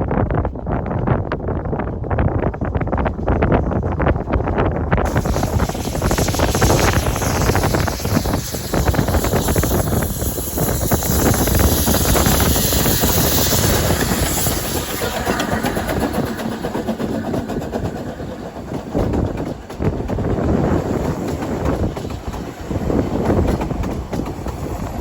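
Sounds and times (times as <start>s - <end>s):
steam train rumbling: 0.1s - 25.0s
steam hissing: 5.0s - 25.0s.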